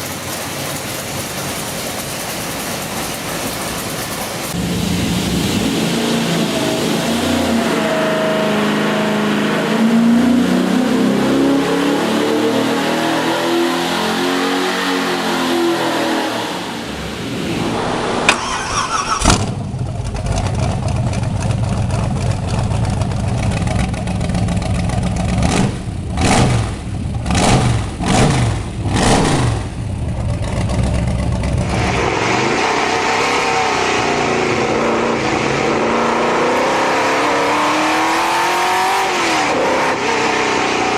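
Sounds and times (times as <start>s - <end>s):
engine idling and revving: 0.0s - 40.9s
car engine accelerating: 3.8s - 40.9s
engine starting: 18.3s - 19.8s.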